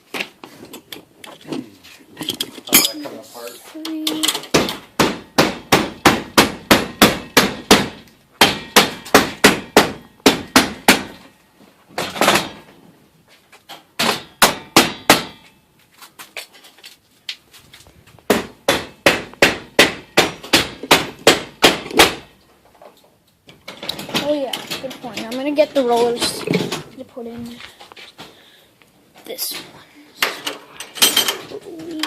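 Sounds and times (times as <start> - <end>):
hammer striking: 4.5 - 11.2, 14.0 - 15.5, 18.3 - 22.3.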